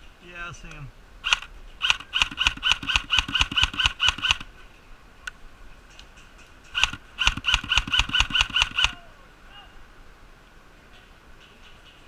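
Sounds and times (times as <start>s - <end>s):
airsoft gun rapid firing: 1.3s - 4.5s, 6.8s - 9.0s.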